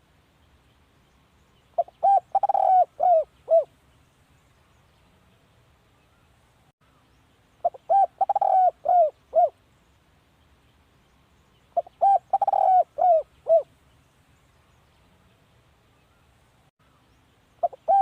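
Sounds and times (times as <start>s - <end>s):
dove cooing: 1.8s - 3.7s, 7.6s - 9.6s, 11.8s - 13.7s, 17.6s - 18.0s.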